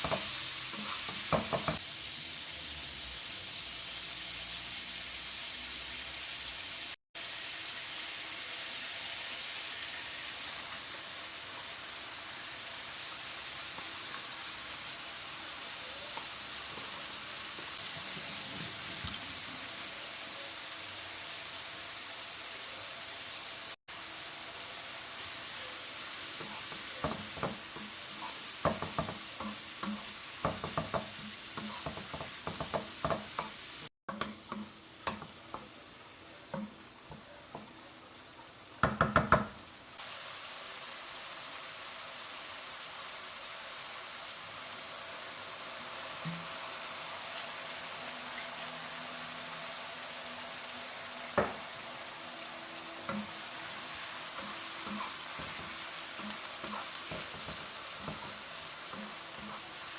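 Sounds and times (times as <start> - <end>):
food sizzling in a frying pan: 0.0 - 59.9
utensil knocking against pan: 1.1 - 1.8, 28.6 - 33.5, 38.8 - 39.6.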